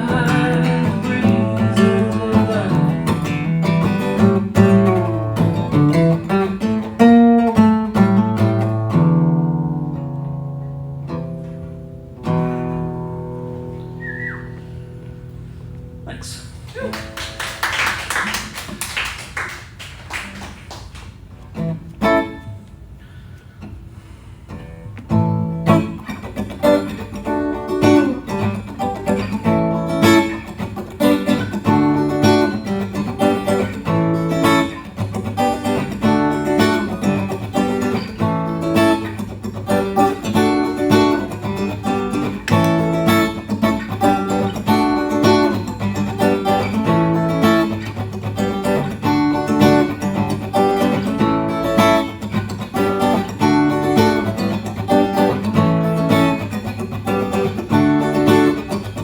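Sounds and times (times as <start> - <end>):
guitar strumming chords: 0.0 - 17.4, 21.5 - 23.0, 24.6 - 59.0.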